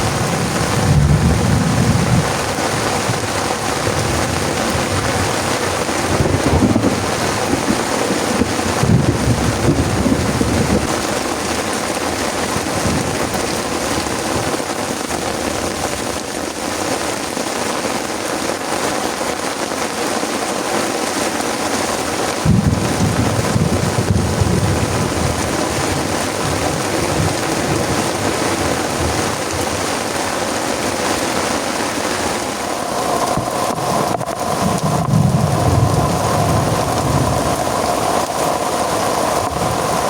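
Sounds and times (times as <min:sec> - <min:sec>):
low thunder rumble: 0:00.0 - 0:14.5, 0:22.4 - 0:29.9, 0:32.3 - 0:40.0
heavy rain pouring: 0:00.0 - 0:40.0.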